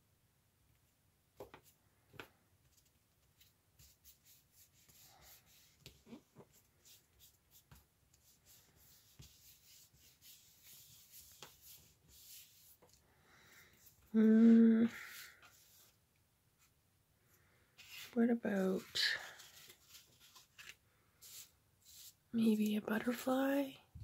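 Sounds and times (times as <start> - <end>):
paper rustling and rubbing: 2.7 - 13.0, 18.8 - 22.2.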